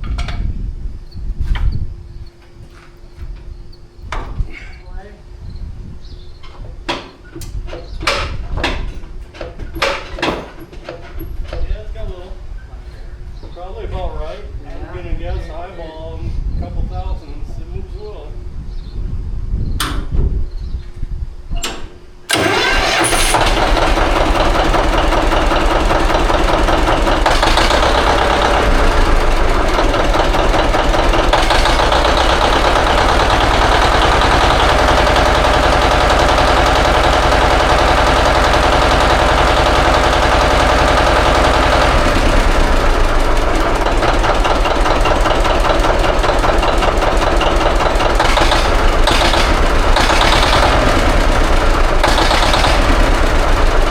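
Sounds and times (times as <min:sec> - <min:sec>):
engine starting and running: 0:06.3 - 0:13.5, 0:21.6 - 0:53.9.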